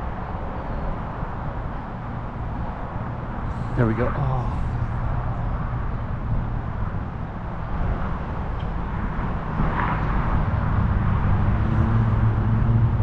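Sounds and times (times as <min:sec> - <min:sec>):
vehicle engine rumbling: 0:03.3 - 0:08.5.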